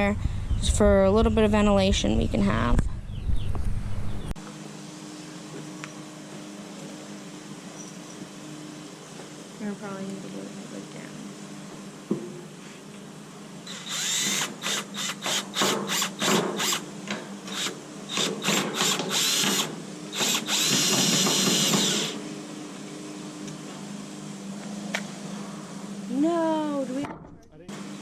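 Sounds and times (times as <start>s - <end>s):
power drill running: 13.6s - 22.3s.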